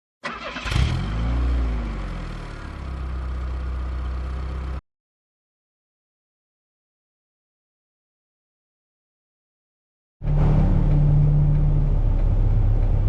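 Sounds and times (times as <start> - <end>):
car engine starting and idling: 0.2 - 4.8, 10.2 - 13.0.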